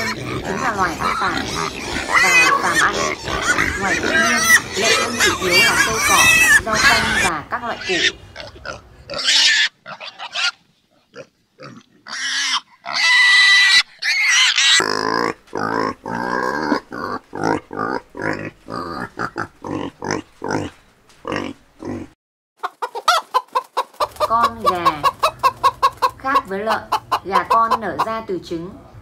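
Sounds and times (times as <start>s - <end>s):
hen clucking: 0.0s - 10.6s, 22.6s - 28.4s
pigs squealing and grunting: 0.0s - 22.2s.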